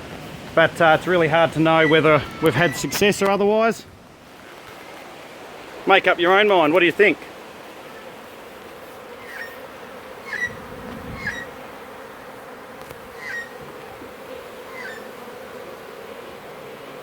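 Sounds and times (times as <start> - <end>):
bee swarm buzzing: 0.0 - 17.0.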